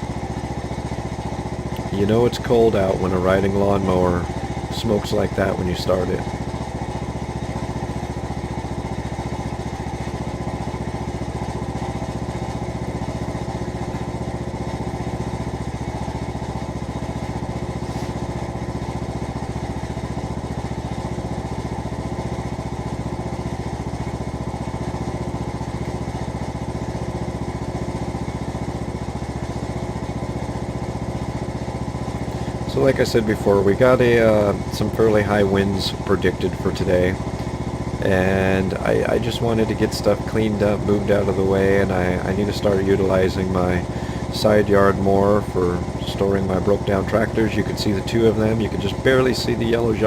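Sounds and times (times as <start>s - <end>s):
lawnmower engine running: 0.0s - 50.0s.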